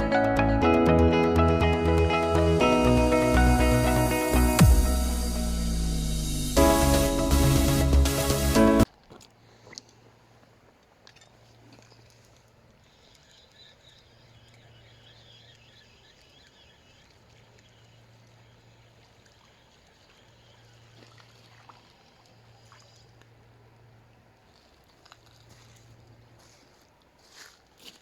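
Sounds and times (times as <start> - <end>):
low hum: 0.0 - 8.9
bird twittering: 13.0 - 18.6.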